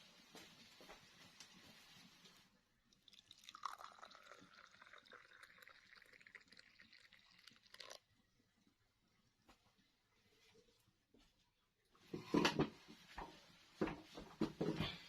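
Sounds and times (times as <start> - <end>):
liquid pouring in a thin stream: 2.8 - 8.7.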